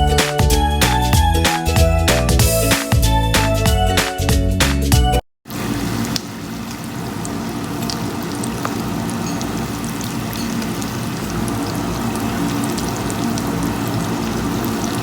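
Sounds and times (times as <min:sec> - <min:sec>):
hot oil sizzling: 0:05.5 - 0:15.0
small crackles and pops: 0:06.0 - 0:15.0.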